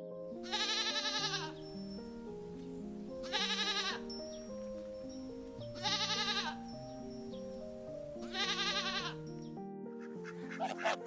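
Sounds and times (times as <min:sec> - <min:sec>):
background music: 0:00.0 - 0:11.0
goat bleating: 0:00.4 - 0:01.6, 0:03.2 - 0:04.1, 0:05.8 - 0:06.6, 0:08.2 - 0:09.2, 0:10.5 - 0:11.0.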